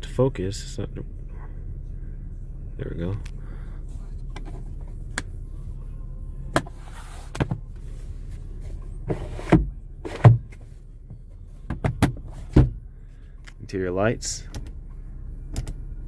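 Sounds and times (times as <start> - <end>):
steady low hum: 0.0 - 16.0
sharp clicks and knocks in car: 9.5 - 12.8, 15.5 - 15.8.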